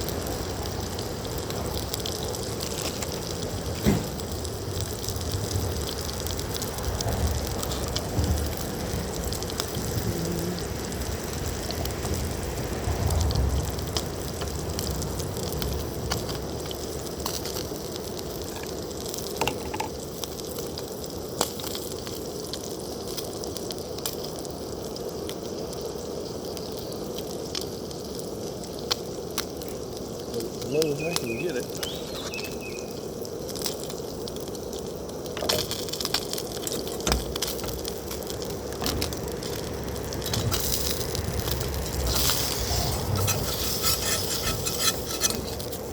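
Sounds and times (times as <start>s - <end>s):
food sizzling in a frying pan: 0.0s - 45.9s
low rumbling: 37.2s - 45.9s.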